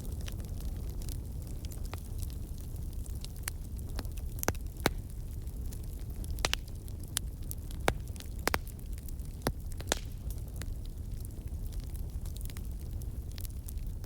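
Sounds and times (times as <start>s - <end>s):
fire crackling and popping: 0.0s - 14.0s
flames rumbling: 0.0s - 14.0s.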